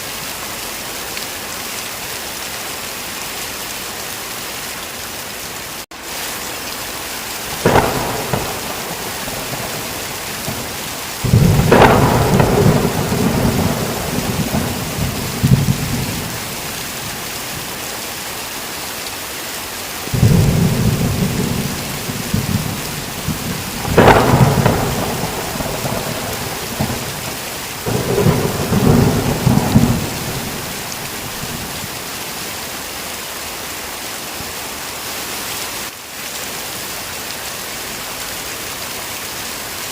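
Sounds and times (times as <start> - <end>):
heavy rain: 0.0 - 39.9
thunder cracking and rumbling: 7.5 - 17.8, 20.1 - 32.1.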